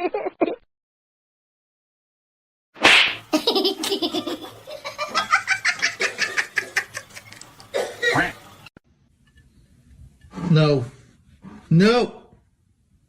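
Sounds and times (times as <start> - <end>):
person laughing hard: 3.3 - 7.3.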